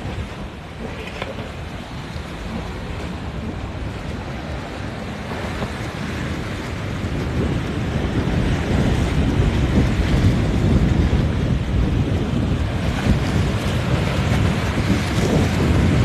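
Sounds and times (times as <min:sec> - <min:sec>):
waves washing: 0:00.0 - 0:16.0
wind buffeting microphone: 0:00.0 - 0:16.0.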